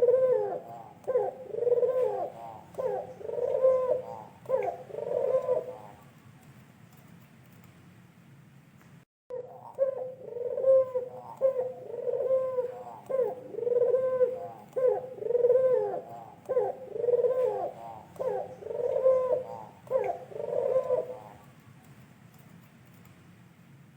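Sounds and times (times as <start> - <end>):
dove cooing: 0.0 - 6.1, 9.3 - 21.5.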